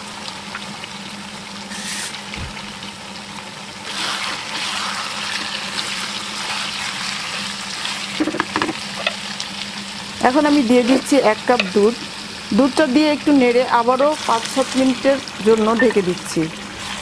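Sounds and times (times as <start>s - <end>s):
chicken sizzling in a pan: 0.0s - 17.0s
steady low hum: 1.7s - 3.2s
spatula stirring: 4.0s - 8.2s.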